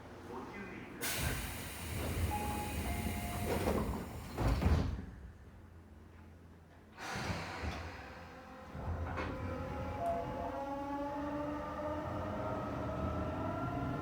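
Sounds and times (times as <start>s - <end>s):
train carriage noise: 1.0s - 5.1s
sliding train doors closing: 1.0s - 5.2s.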